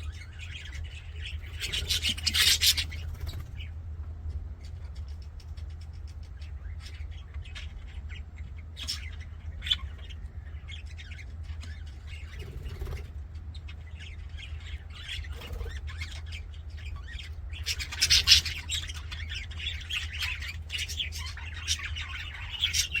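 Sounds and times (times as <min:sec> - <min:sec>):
budgerigars chirping and squawking: 0:00.0 - 0:23.0
steady low hum: 0:00.0 - 0:23.0.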